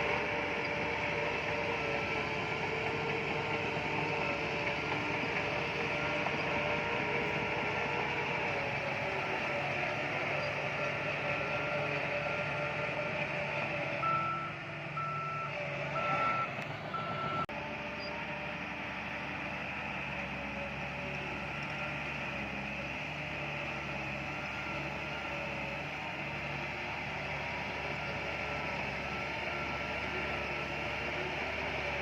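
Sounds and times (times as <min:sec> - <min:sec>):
heavy machinery engines running: 0:00.0 - 0:32.0
reversing alarm beeping: 0:14.0 - 0:17.5.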